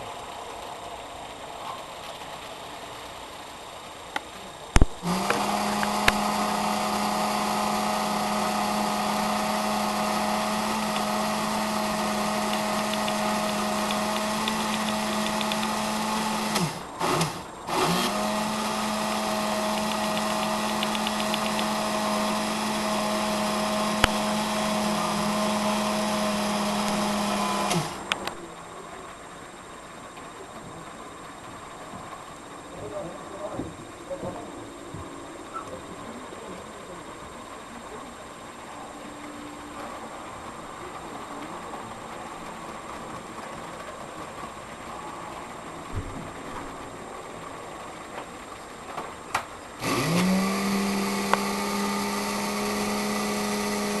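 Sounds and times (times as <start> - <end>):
small electric motor humming: 2.2 - 43.3, 49.7 - 54.0
click: 12.5 - 15.7, 19.7 - 21.7, 27.7 - 28.4.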